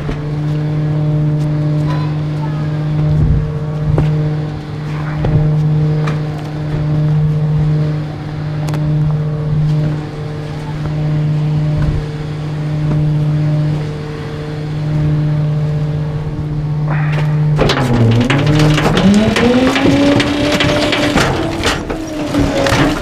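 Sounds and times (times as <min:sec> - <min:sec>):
garbage truck engine hum: 0:00.0 - 0:23.0
rush of noise: 0:16.6 - 0:23.0.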